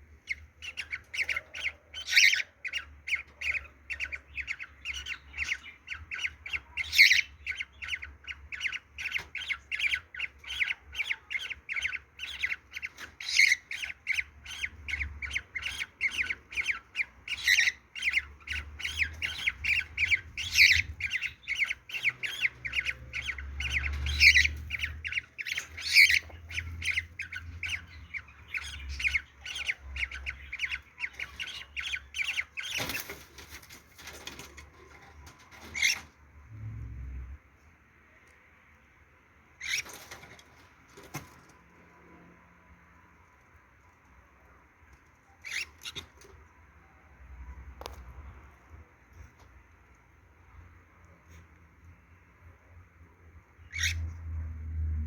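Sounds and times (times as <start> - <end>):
cockatiel chirping: 0.2 - 36.1, 39.6 - 40.4, 45.3 - 46.4, 53.6 - 54.1.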